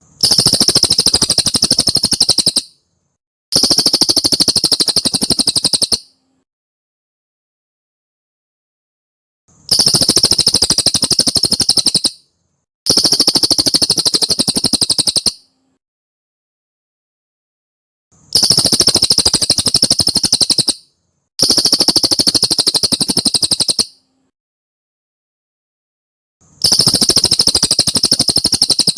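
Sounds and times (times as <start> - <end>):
bird chattering trills: 0.2 - 2.8, 3.6 - 6.1, 9.7 - 12.2, 12.9 - 15.4, 18.4 - 24.0, 26.6 - 28.9.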